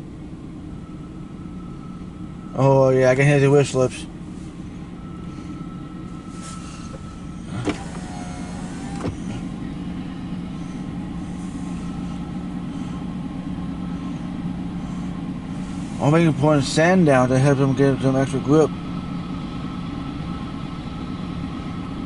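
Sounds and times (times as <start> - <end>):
locomotive engine drone: 0.0 - 22.0
slipping wheels whining: 0.6 - 17.0
wheel squeals: 5.0 - 9.4.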